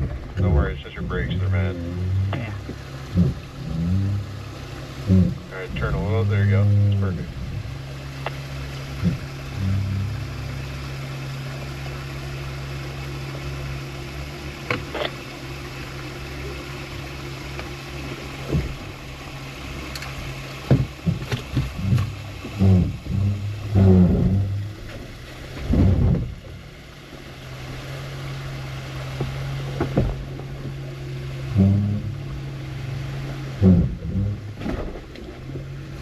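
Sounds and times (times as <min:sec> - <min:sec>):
loud low thumps: 0:00.0 - 0:07.8, 0:20.7 - 0:24.9, 0:25.6 - 0:26.6, 0:31.5 - 0:32.4, 0:33.6 - 0:34.7
vehicle engine humming: 0:00.0 - 0:36.0.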